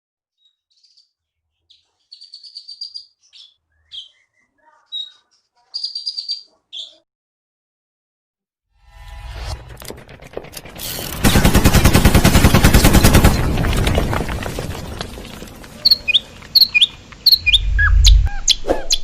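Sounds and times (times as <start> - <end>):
songbird chirping and trilling: 0.3 - 7.1, 15.8 - 19.0.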